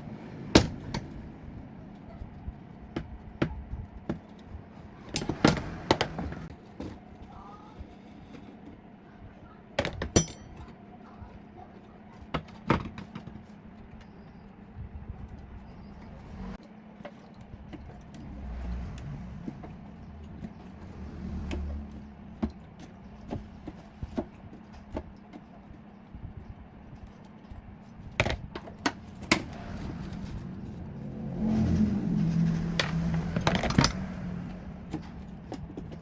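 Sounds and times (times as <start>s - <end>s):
metallic clinks and knocks: 5.1s - 6.3s, 9.8s - 10.8s, 32.8s - 34.2s
low scraping thuds: 28.4s - 36.0s.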